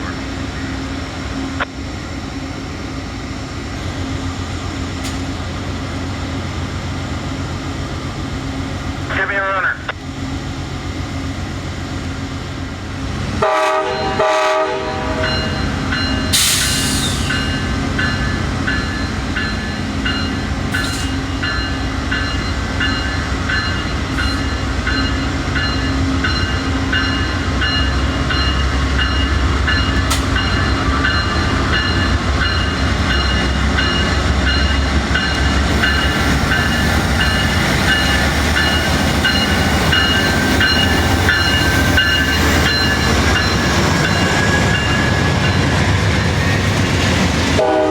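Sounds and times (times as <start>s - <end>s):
freight train rumble: 0.0s - 47.9s
train horn: 13.4s - 15.5s, 47.5s - 47.9s.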